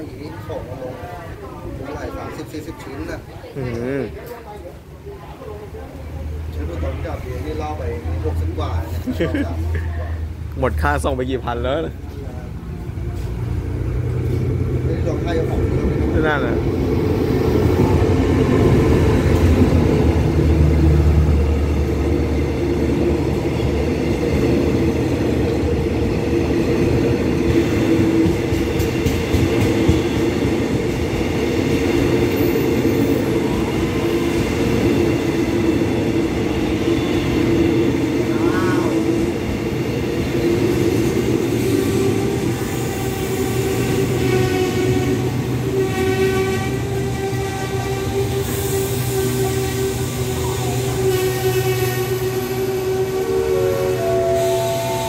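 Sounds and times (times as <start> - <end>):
carriages rolling on rails: 0.0 - 55.0
locomotive engine drone: 11.9 - 27.6, 49.2 - 55.0
high brake squeal: 48.5 - 55.0.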